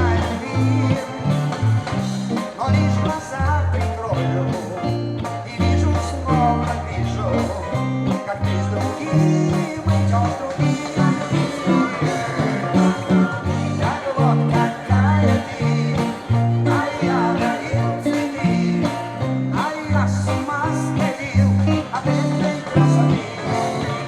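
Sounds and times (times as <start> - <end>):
bass line: 0.0 - 24.0
guitar accompaniment: 0.0 - 24.0
person singing: 0.0 - 24.0.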